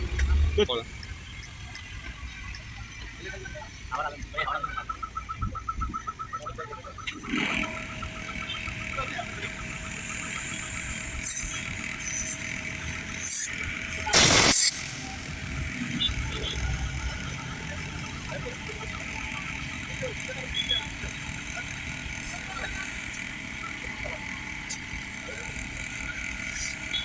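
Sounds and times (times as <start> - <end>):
steady background noise: 0.0 - 27.0
short loud hiss: 14.2 - 15.1.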